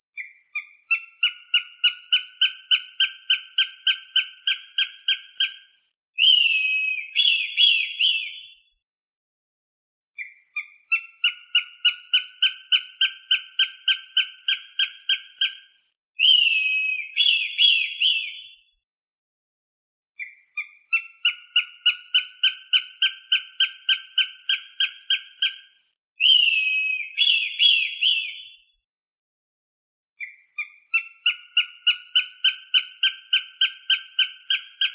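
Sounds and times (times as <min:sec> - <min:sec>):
hawk calls: 0:00.2 - 0:05.6, 0:06.2 - 0:08.4, 0:10.6 - 0:15.6, 0:16.2 - 0:18.4, 0:20.6 - 0:25.6, 0:26.2 - 0:28.4, 0:30.6 - 0:34.9.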